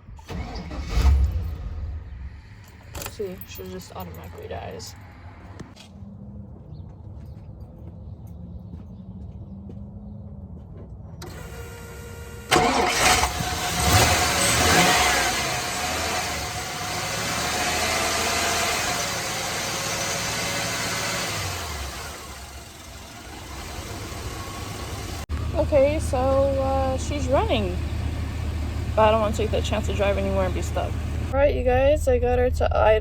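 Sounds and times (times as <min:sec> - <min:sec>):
truck engine starting and idling: 0:00.0 - 0:04.4, 0:11.2 - 0:33.0.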